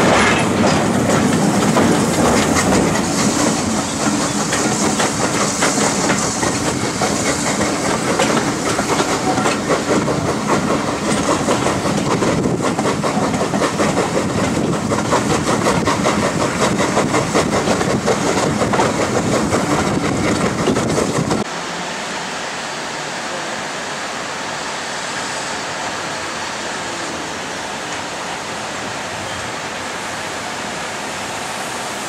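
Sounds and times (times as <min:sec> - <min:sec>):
train wheels clattering over rail joints: 0:00.0 - 0:21.5.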